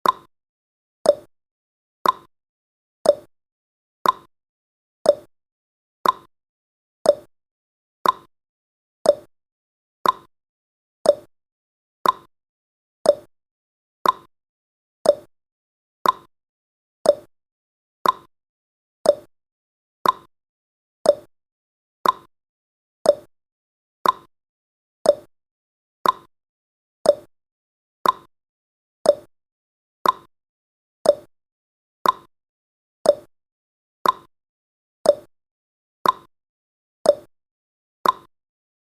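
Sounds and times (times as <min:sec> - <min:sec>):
clock ticking: 0:02.0 - 0:02.3, 0:04.0 - 0:04.3, 0:06.0 - 0:06.3, 0:08.0 - 0:08.3, 0:10.0 - 0:10.3, 0:12.0 - 0:12.3, 0:14.0 - 0:14.3, 0:15.1 - 0:15.3, 0:16.0 - 0:16.3, 0:18.0 - 0:18.3, 0:19.1 - 0:19.3, 0:20.0 - 0:20.3, 0:21.1 - 0:21.3, 0:22.0 - 0:22.3, 0:24.0 - 0:24.3, 0:26.0 - 0:26.3, 0:28.0 - 0:28.3, 0:29.1 - 0:29.3, 0:30.0 - 0:30.3, 0:31.1 - 0:31.3, 0:32.0 - 0:32.3, 0:33.1 - 0:33.3, 0:34.0 - 0:34.3, 0:35.1 - 0:35.3, 0:36.0 - 0:36.3, 0:38.0 - 0:38.3.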